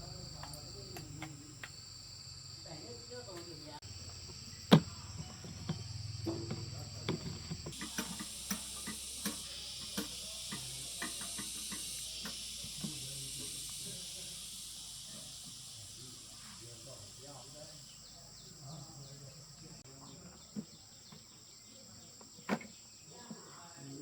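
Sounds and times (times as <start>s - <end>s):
insect chirring: 0.0s - 24.0s
irregular clicks and taps: 4.7s - 13.0s
hiss: 4.8s - 18.1s.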